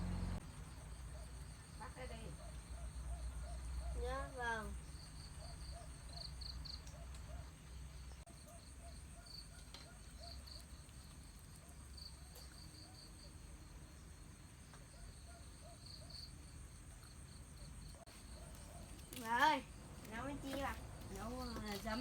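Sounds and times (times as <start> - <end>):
low hum: 0.0 - 0.4
insects chirping: 0.0 - 7.0, 7.6 - 22.0.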